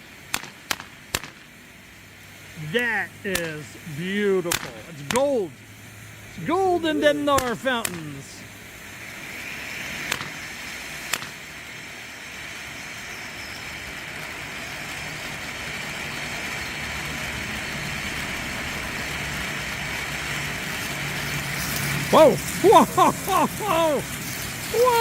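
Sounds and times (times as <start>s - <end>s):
sharp pops: 0.0s - 1.7s, 2.6s - 8.6s, 10.0s - 11.5s
firework fountain hissing: 0.0s - 25.0s.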